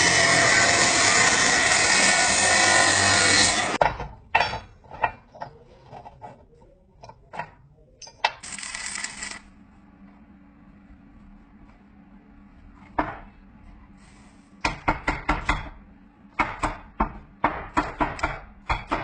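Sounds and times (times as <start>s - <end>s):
power tool running: 0.0s - 3.8s.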